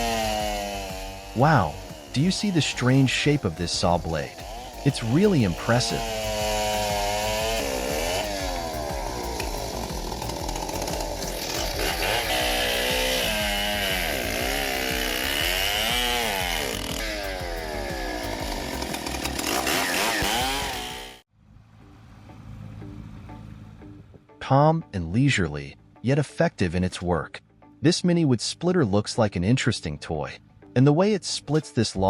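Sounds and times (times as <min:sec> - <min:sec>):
chainsaw cutting wood: 0:00.0 - 0:21.3.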